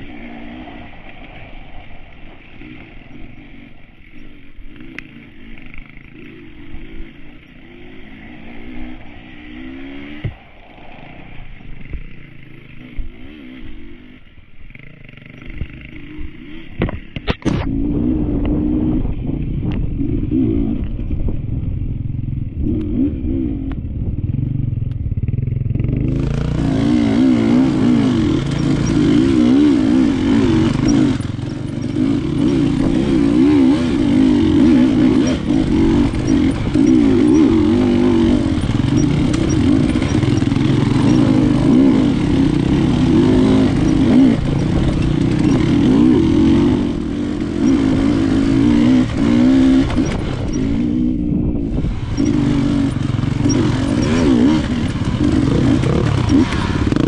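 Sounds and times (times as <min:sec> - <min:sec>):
dirt bike engine revving: 0:00.0 - 0:57.0
bike clattering and scraping: 0:26.8 - 0:50.9.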